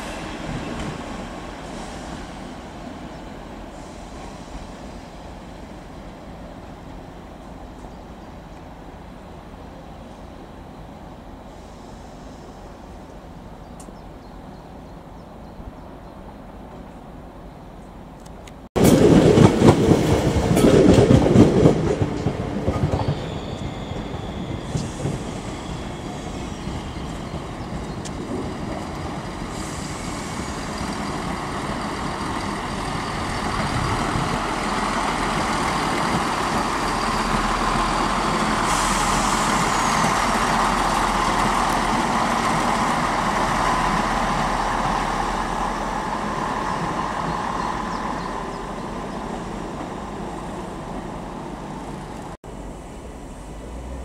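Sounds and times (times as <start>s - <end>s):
train engine and wheels rumbling: 0.0s - 54.0s
train rattling and clattering: 18.8s - 52.4s.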